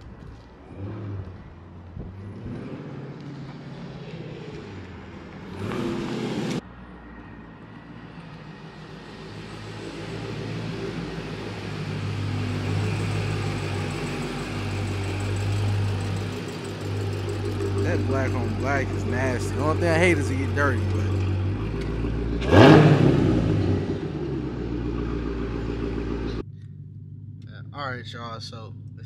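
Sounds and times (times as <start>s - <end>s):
car engine revving burst: 5.5s - 6.6s, 10.2s - 26.4s
car engine idling: 7.7s - 29.0s.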